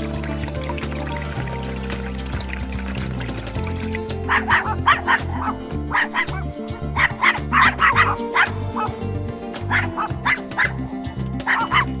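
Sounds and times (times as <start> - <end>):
background music with beat: 0.0 - 12.0
dog barking: 4.3 - 9.0, 9.7 - 10.8, 11.4 - 12.0.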